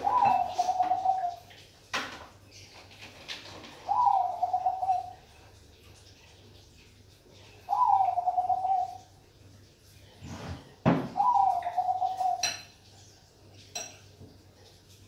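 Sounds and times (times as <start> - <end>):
dove cooing: 0.0 - 1.5, 3.6 - 5.2, 7.6 - 9.1, 11.1 - 12.6.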